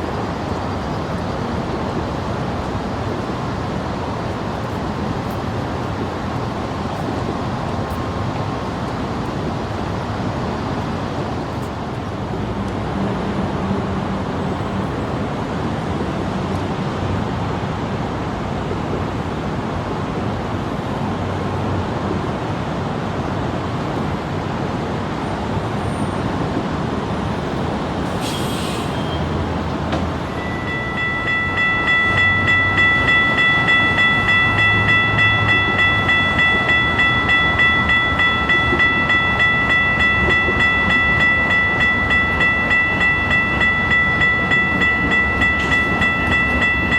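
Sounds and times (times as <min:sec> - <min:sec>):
train rumbling on tracks: 0:00.0 - 0:46.9
railroad crossing bell ringing: 0:28.9 - 0:46.9.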